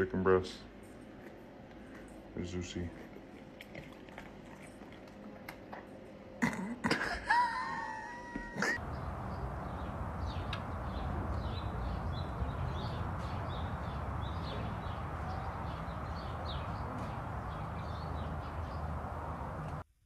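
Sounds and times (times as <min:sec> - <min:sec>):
low background rumble: 0:00.6 - 0:19.9
small birds chirping: 0:08.8 - 0:19.8.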